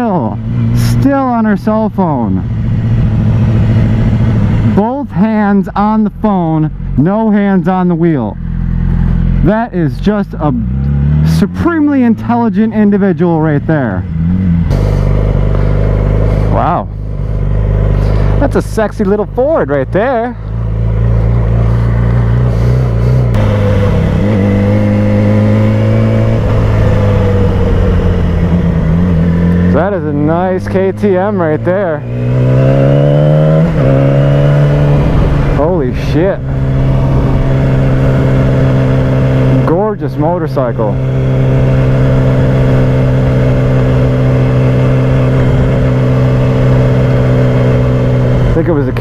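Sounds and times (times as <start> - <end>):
low rumble: 0.0 - 49.0
motorcycle engine running: 0.0 - 49.0
road and wind noise: 0.0 - 49.0.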